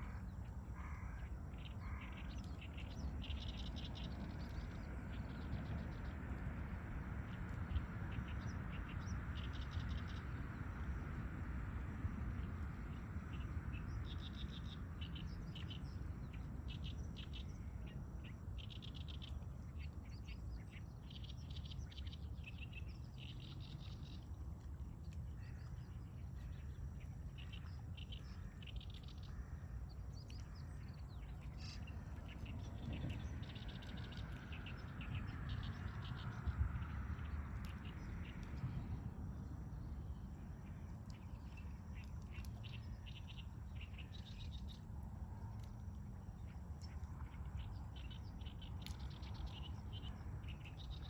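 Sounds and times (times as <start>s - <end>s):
songbirds chirping: 0.0s - 51.0s
steady low rumble: 0.0s - 51.0s.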